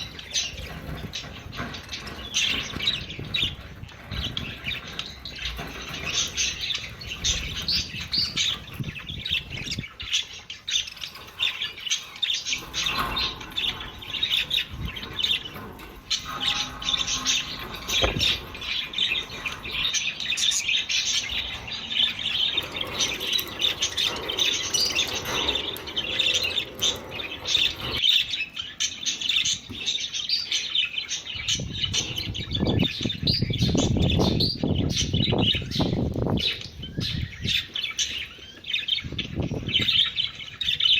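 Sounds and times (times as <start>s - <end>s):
low rustling noise: 0.0s - 30.8s
budgerigars chattering and chirping: 0.0s - 40.9s.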